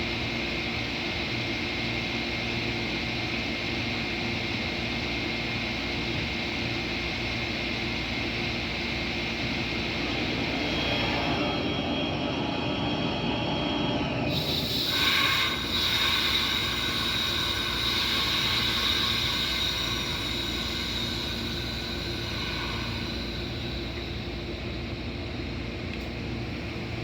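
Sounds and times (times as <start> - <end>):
high-pitched wheel whine: 4.9 - 27.0
train rolling on rails: 9.4 - 27.0.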